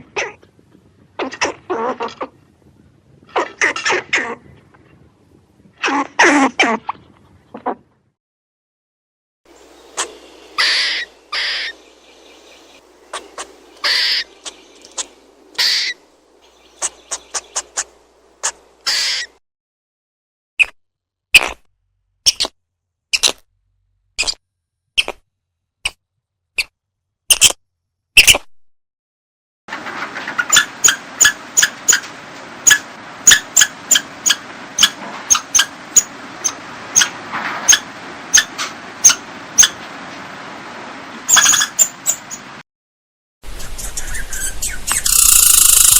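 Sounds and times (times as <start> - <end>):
squirrel rasping barks: 9.9 - 11.8, 12.4 - 19.4, 32.6 - 39.8.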